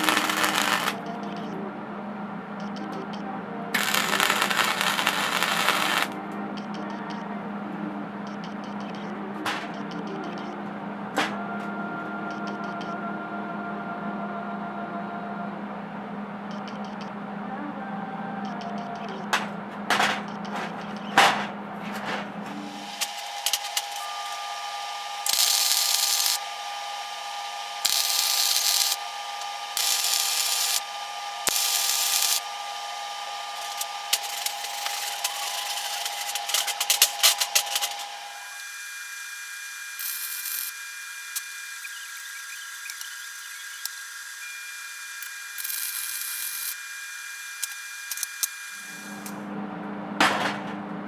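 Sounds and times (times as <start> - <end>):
welder hissing and crackling: 0.0 - 1.0, 3.8 - 6.2, 22.6 - 49.4.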